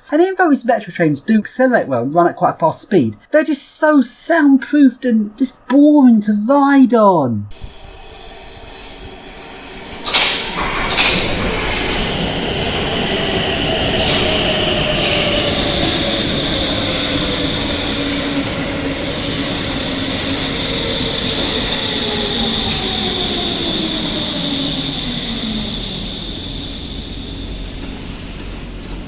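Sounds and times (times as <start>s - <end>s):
train running noise: 0.0s - 2.0s, 7.6s - 29.0s
train wheel squeal: 7.6s - 29.0s.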